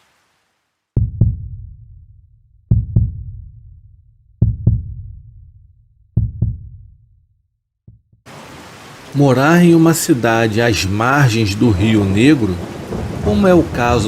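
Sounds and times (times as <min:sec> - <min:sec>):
heartbeat thumps: 0:01.0 - 0:02.0, 0:02.7 - 0:07.0, 0:07.9 - 0:08.2.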